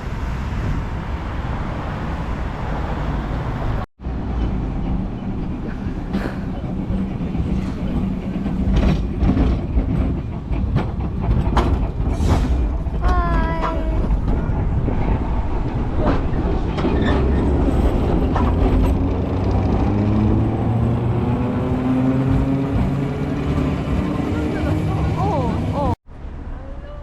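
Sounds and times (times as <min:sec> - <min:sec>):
vehicle rumbling: 0:00.0 - 0:27.0
rattles and clicks: 0:04.4 - 0:19.6.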